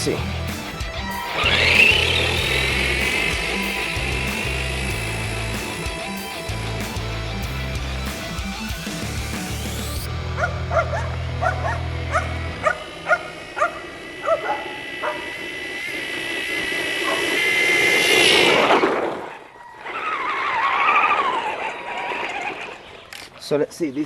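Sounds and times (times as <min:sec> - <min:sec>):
electric toy car motor whining: 0:00.0 - 0:08.0, 0:12.2 - 0:23.2
dog yelping: 0:10.4 - 0:15.3, 0:17.0 - 0:17.3.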